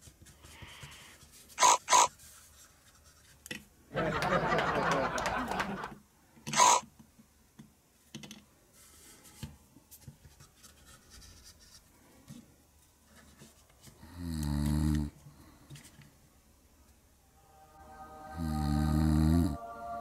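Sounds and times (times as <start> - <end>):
person imitating a snore: 14.0 - 15.2, 18.3 - 19.6.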